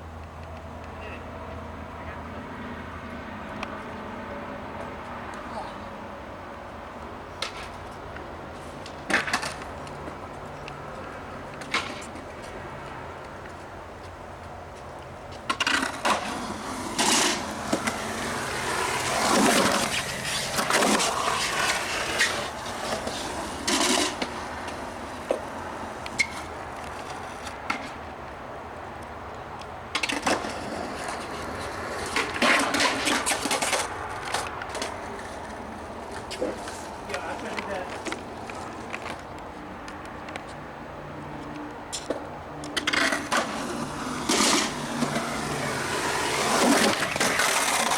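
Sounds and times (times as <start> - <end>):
skateboard rolling: 3.0 - 47.9
skateboard clacking on landing: 15.4 - 28.0.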